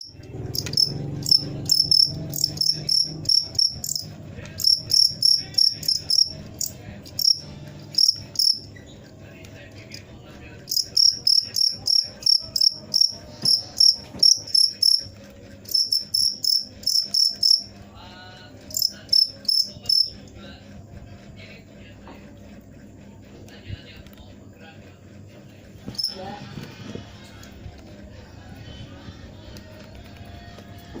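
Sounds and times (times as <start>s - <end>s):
cricket chirping: 0.0s - 8.8s, 10.7s - 20.3s, 25.8s - 26.2s.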